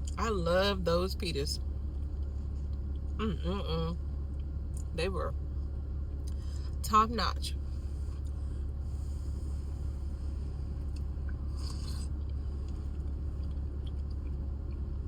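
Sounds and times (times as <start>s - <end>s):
car cabin rumble: 0.0s - 15.0s
person chewing food: 10.6s - 15.0s.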